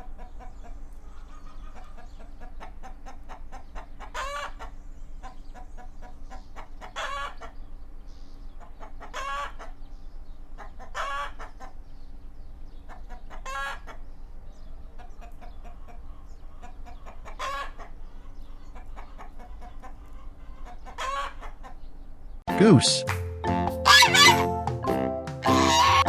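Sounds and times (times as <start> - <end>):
chickens clucking: 0.0 - 22.1, 23.9 - 24.5, 25.4 - 26.0
loud pitched chicken call: 4.1 - 4.7, 6.3 - 7.6, 20.9 - 21.6, 23.8 - 24.5, 25.4 - 26.0.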